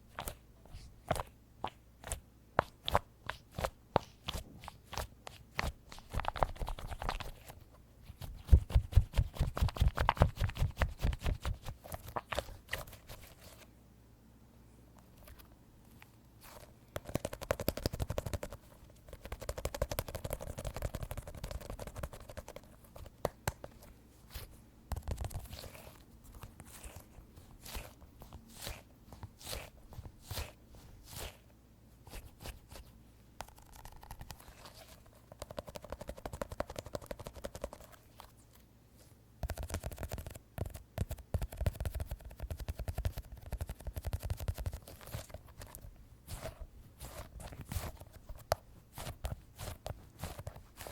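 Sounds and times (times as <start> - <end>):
fingertips tapping squishy toy: 16.9 - 23.8, 35.2 - 38.0, 39.4 - 50.9.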